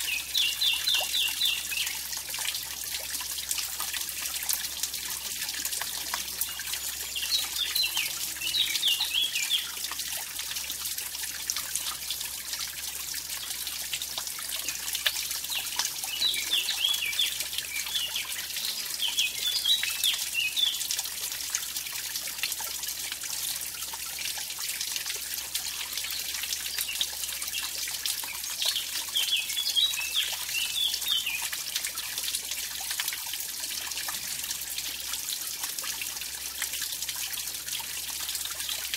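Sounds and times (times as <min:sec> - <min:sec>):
bird singing warbling phrases: 0:00.0 - 0:02.0, 0:06.4 - 0:09.8, 0:15.5 - 0:20.8, 0:28.7 - 0:31.4
stream splashing over waterfall: 0:00.0 - 0:38.9.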